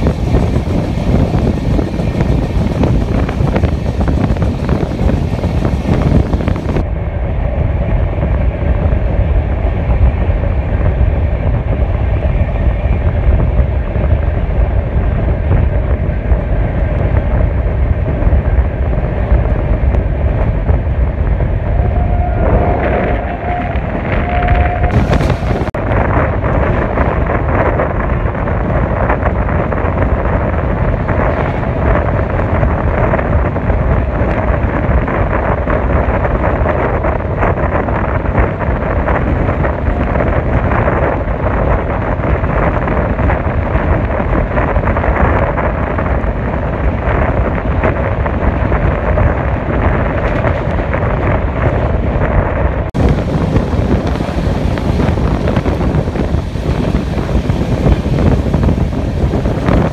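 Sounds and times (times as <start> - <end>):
train wheels rumbling: 0.0 - 59.9
wind rushing over microphone: 0.0 - 59.9.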